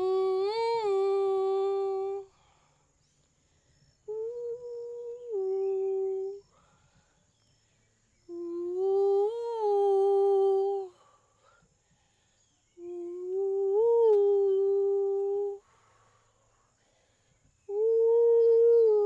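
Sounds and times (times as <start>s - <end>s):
woman humming: 0.0s - 2.3s, 4.1s - 6.5s, 8.2s - 11.0s, 12.7s - 15.6s, 17.6s - 19.0s.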